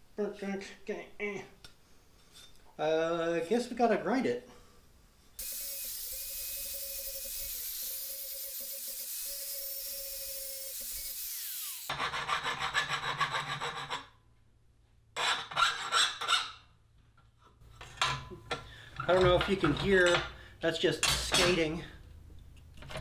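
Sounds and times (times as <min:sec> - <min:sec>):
power grinder on steel: 0:05.4 - 0:12.2
hand file rasping on steel: 0:11.3 - 0:14.2.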